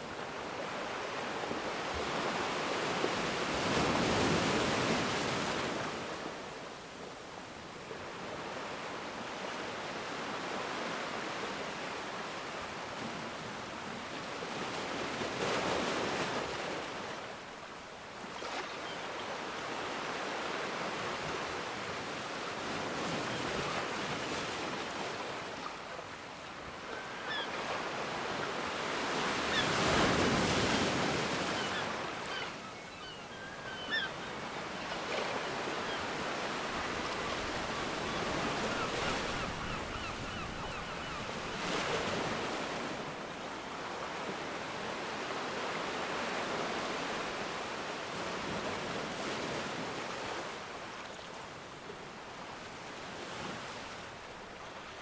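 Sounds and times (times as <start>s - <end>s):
ocean waves breaking: 18.3s - 50.7s.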